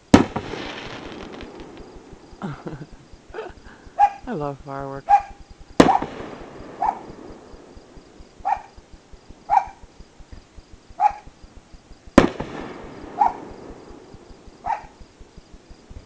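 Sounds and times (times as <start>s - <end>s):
firework crack with echo: 0.0s - 3.0s, 5.7s - 9.8s, 12.1s - 15.3s
dog barking: 4.0s - 4.3s, 5.1s - 6.0s, 6.8s - 7.1s, 8.4s - 8.8s, 9.5s - 9.8s, 11.0s - 11.3s, 13.2s - 13.4s, 14.6s - 15.0s.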